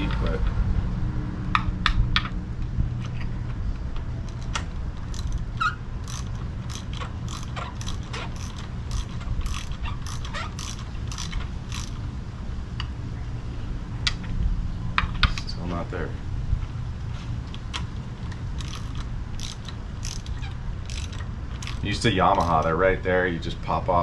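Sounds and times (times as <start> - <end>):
socket wrench ratchet clicking: 4.3 - 12.0, 17.7 - 22.7.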